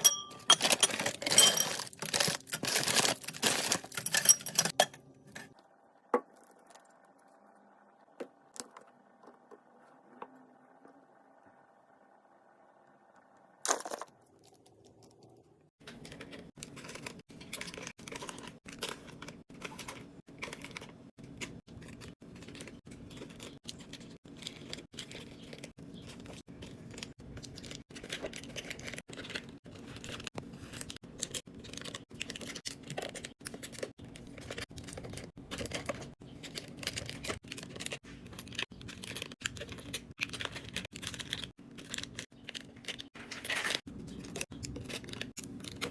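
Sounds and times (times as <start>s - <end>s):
wrappers crinkling and tearing: 0.6s - 4.7s, 15.8s - 45.9s.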